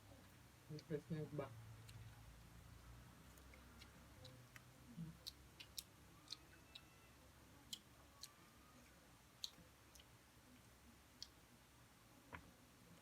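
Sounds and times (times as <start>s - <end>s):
eating clicks and smacks: 1.8s - 6.9s, 7.6s - 8.4s, 9.3s - 11.4s.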